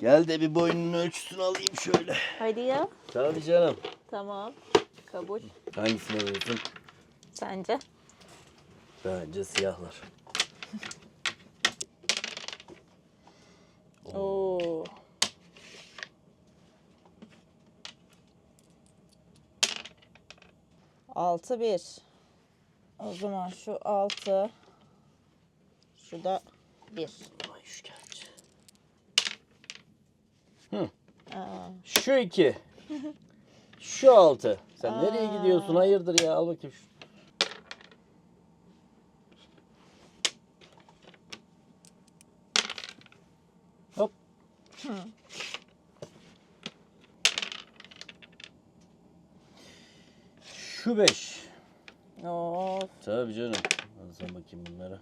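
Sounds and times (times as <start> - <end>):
dice clattering: 5.7 - 7.0, 9.4 - 12.8, 17.8 - 20.6, 24.0 - 24.5, 27.4 - 29.9, 37.1 - 38.0, 40.2 - 43.2, 46.6 - 48.6, 53.5 - 54.4.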